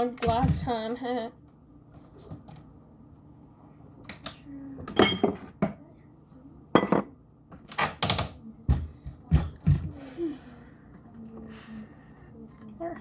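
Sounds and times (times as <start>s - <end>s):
dishes and utensils clattering: 4.8s - 5.8s, 6.8s - 7.2s.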